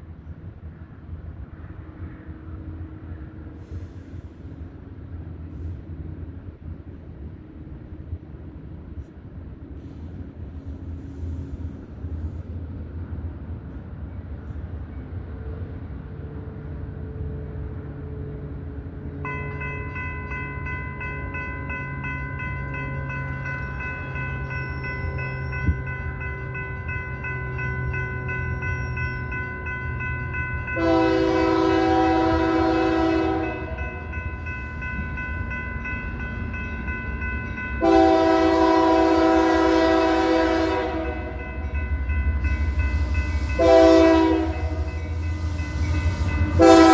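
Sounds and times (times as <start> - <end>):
diesel locomotives rumbling: 0.0 - 46.9
multi-note locomotive horn: 30.8 - 34.2, 37.8 - 41.6, 43.4 - 46.9.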